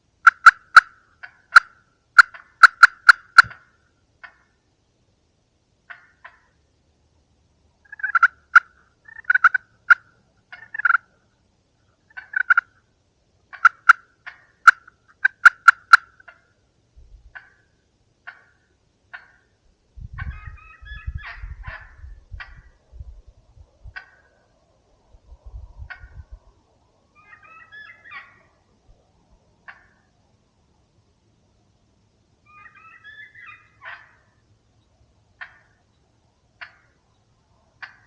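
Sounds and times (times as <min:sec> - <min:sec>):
turkey calls: 0:00.2 - 0:04.6, 0:05.9 - 0:06.6, 0:07.8 - 0:12.9, 0:13.5 - 0:16.6, 0:17.3 - 0:19.6, 0:20.2 - 0:22.8, 0:23.9 - 0:24.5, 0:25.8 - 0:26.3, 0:27.1 - 0:28.7, 0:29.6 - 0:30.1, 0:32.4 - 0:34.4, 0:35.4 - 0:35.9, 0:36.6 - 0:37.1, 0:37.8 - 0:38.0.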